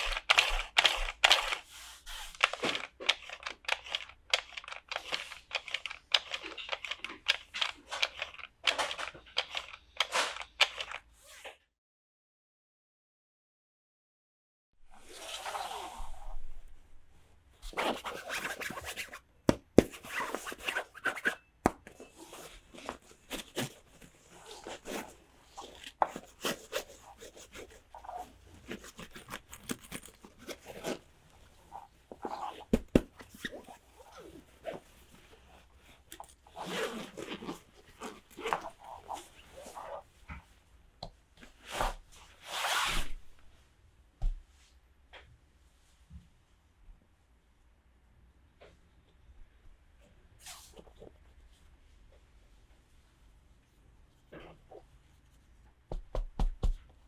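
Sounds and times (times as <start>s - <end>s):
plastic toy pieces clicking: 2.3s - 11.0s
plastic packaging rustling and tearing: 22.1s - 40.0s.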